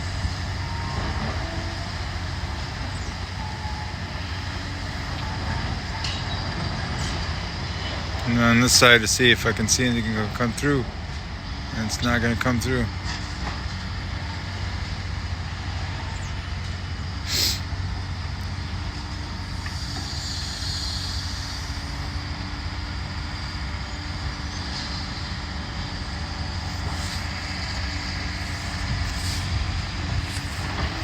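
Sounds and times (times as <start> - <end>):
diesel machine droning: 0.0 - 31.0.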